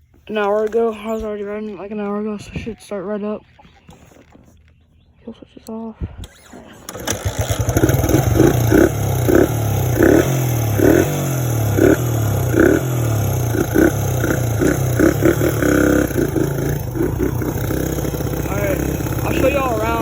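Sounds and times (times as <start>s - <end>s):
dirt bike engine revving: 6.3s - 20.0s.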